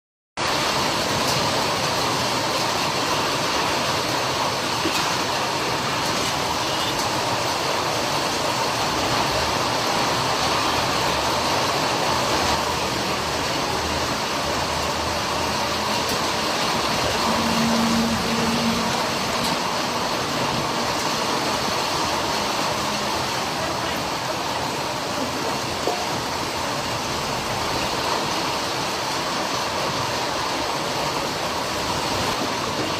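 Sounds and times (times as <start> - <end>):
heavy rain pouring: 0.4 - 32.9.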